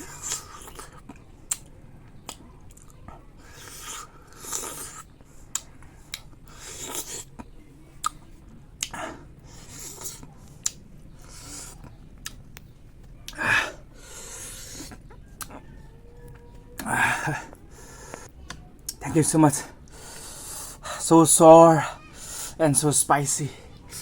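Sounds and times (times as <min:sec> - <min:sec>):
wet mouth chewing clicks: 0:00.0 - 0:13.4, 0:14.0 - 0:15.6.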